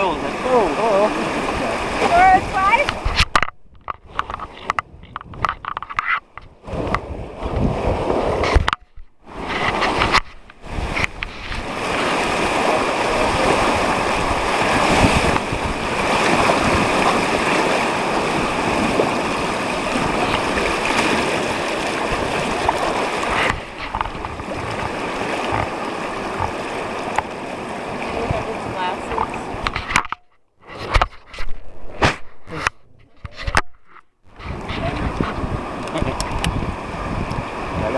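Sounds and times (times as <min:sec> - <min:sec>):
whitewater rapids rushing: 0:00.0 - 0:03.1, 0:11.6 - 0:29.6.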